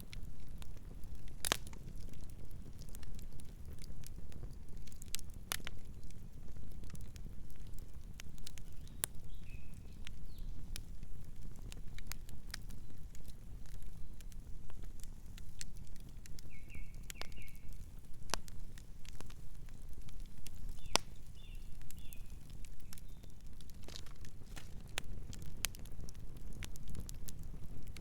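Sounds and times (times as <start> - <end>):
campfire crackling: 0.0 - 28.0
bird chirps: 16.5 - 17.7.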